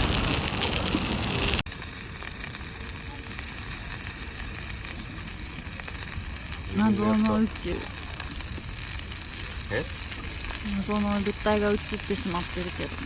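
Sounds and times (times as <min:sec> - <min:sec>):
chicken sizzling over campfire: 0:00.0 - 0:13.0.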